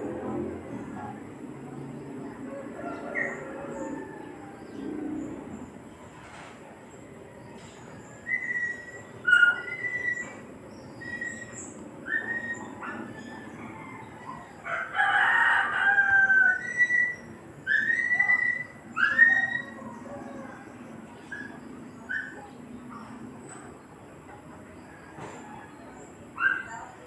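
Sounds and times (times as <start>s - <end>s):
birds chirping and whistling: 2.0s - 6.1s, 7.0s - 14.6s, 16.4s - 24.0s
long loud bird call: 8.1s - 19.9s.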